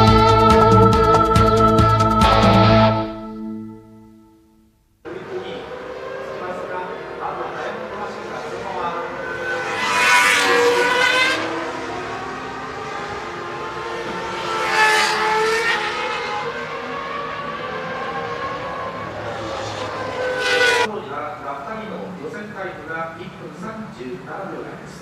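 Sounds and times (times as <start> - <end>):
racing cars screaming past: 5.1 - 20.9.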